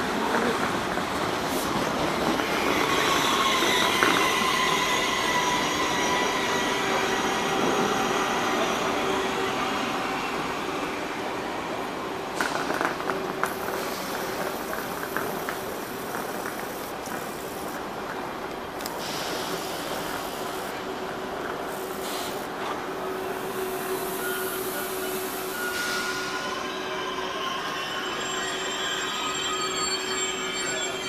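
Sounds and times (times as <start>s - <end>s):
train wheels squealing: 1.6s - 11.0s, 23.0s - 31.0s.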